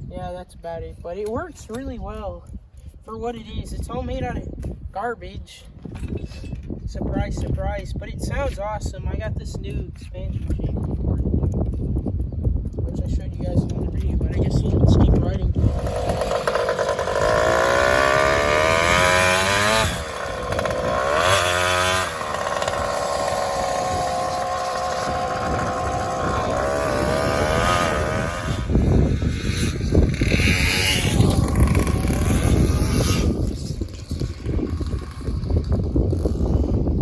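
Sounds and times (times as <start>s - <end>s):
two-stroke engine revving: 15.5s - 36.8s.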